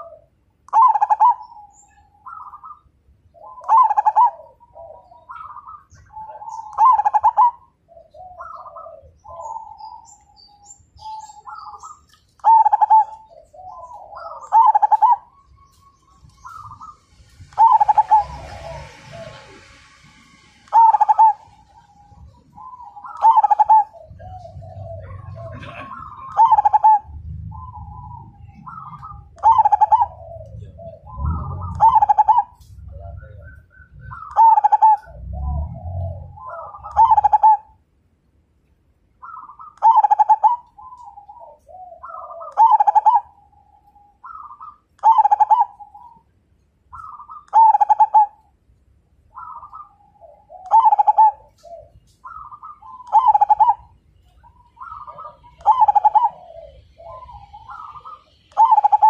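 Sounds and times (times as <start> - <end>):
dove cooing: 0.0 - 19.9, 20.6 - 37.8, 39.2 - 46.3, 46.9 - 48.5, 49.3 - 59.0
low rumble: 26.9 - 34.4, 35.0 - 37.2.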